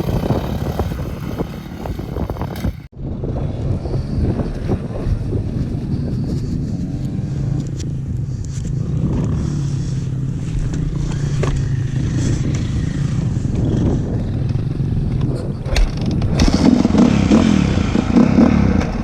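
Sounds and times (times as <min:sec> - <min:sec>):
dirt bike engine idling: 0:00.0 - 0:02.9.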